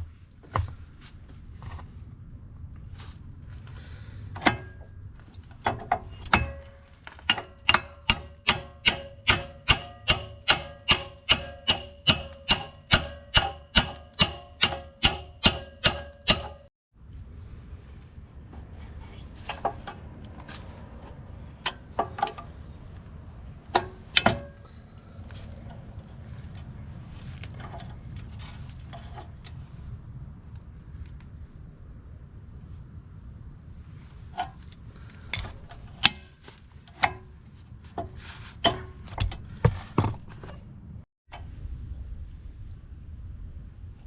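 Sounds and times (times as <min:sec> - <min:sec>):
steady low rumble: 0:00.0 - 0:11.3, 0:17.0 - 0:38.0, 0:40.7 - 0:44.0
hammer blows on steel: 0:07.3 - 0:16.7.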